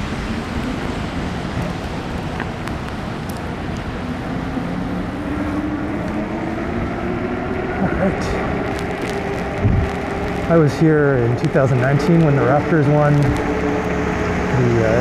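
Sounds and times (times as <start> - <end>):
road noise: 0.0 - 15.0
wind rumble on microphone: 0.0 - 15.0
low motor hum rising in pitch: 4.0 - 15.0.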